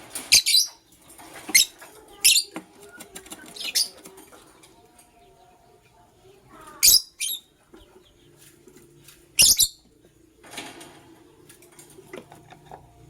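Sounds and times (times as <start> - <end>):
faint bird chatter: 0.0 - 12.8
birds chirping shrilly: 0.1 - 4.1, 6.6 - 8.5, 9.4 - 9.9.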